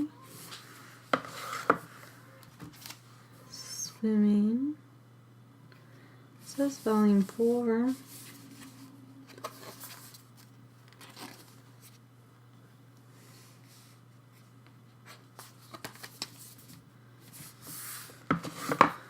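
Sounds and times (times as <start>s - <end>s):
packaging and paper rustling: 7.1s - 12.0s, 15.4s - 16.8s.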